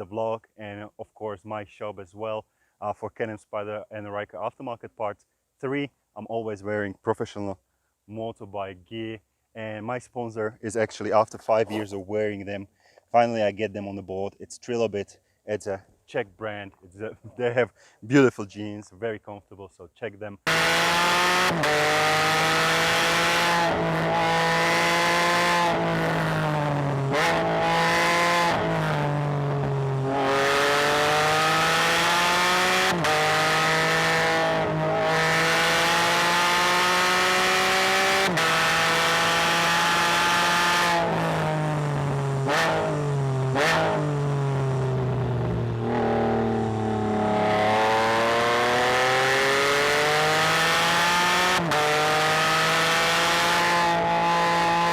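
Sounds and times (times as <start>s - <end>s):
motorcycle engine accelerating: 20.5s - 54.9s.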